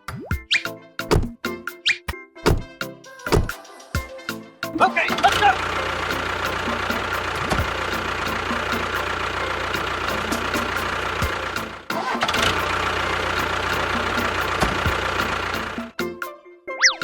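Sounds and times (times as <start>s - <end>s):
engine running: 5.1s - 16.0s.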